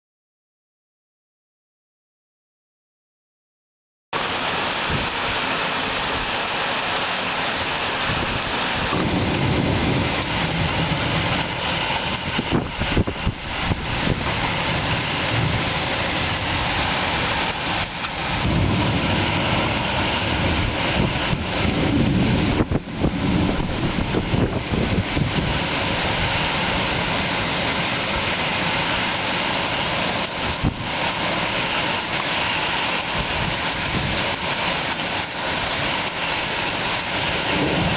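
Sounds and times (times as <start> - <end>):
heavy rain pouring: 4.2 - 37.9
wind buffeting microphone: 8.0 - 28.8, 29.4 - 31.2, 32.8 - 34.9.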